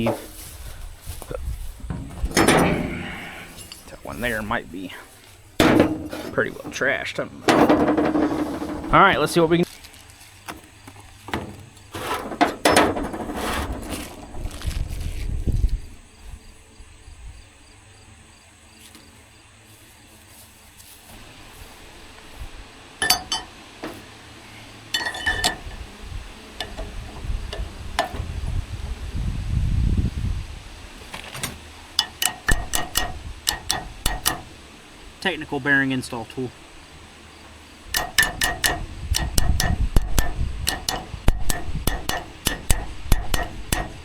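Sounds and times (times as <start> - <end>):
metal tools clinking: 1.8 - 9.1, 23.0 - 24.0, 24.9 - 25.9, 32.0 - 34.5, 37.9 - 44.0
hammer striking metal: 2.2 - 3.8, 5.6 - 6.3, 23.0 - 23.5, 32.0 - 34.6, 37.9 - 44.0.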